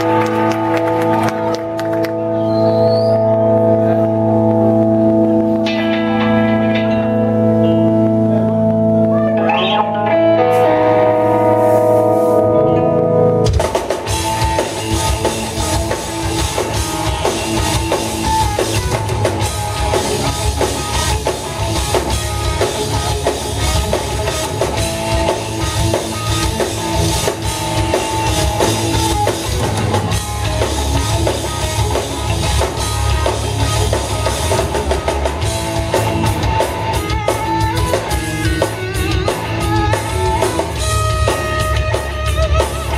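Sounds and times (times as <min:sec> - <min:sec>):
bass guitar: 0:00.0 - 0:42.9
electric guitar chords: 0:00.0 - 0:42.9
drum kit: 0:13.3 - 0:42.9.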